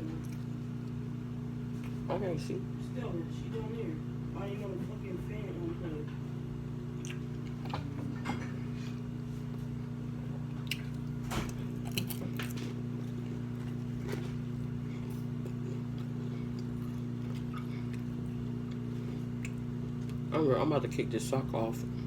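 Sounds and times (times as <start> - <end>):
steady low hum: 0.0 - 22.0
person chewing food: 0.1 - 1.1, 6.9 - 20.3.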